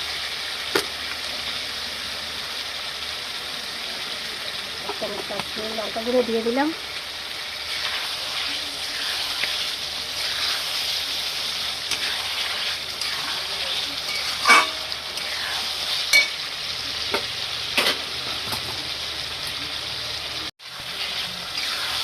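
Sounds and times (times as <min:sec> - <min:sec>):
chicken sizzling in hot oil: 0:00.0 - 0:22.0
stirring in a pan: 0:04.8 - 0:17.4, 0:20.6 - 0:22.0
metal spatula clinking on pan: 0:14.1 - 0:14.9, 0:16.1 - 0:16.4.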